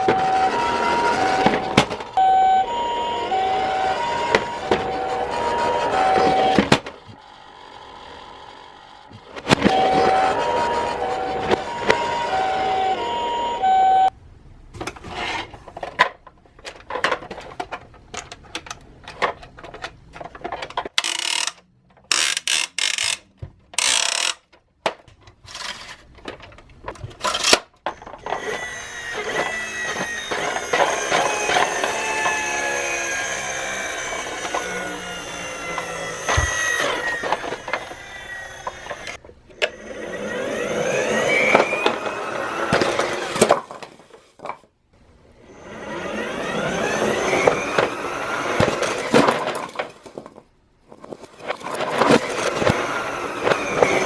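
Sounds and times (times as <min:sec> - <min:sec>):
toy cars clattering on plastic track: 0:14.8 - 0:39.8, 0:40.6 - 0:44.7, 0:46.5 - 0:54.0.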